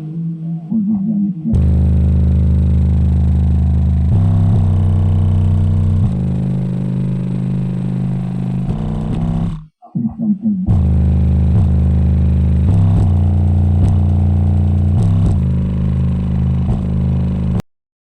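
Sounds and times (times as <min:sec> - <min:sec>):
bass-heavy music from car audio: 0:01.6 - 0:09.6, 0:10.7 - 0:17.6.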